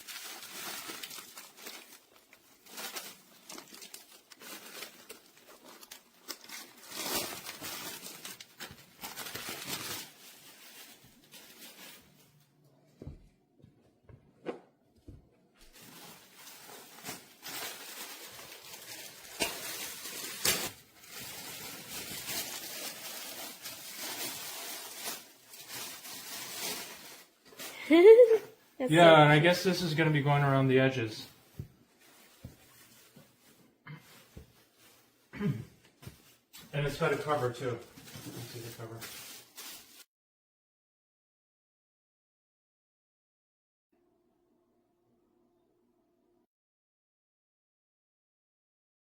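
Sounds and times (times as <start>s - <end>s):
plastic packaging crinkling: 0.0s - 12.6s, 15.6s - 28.4s, 36.0s - 40.1s.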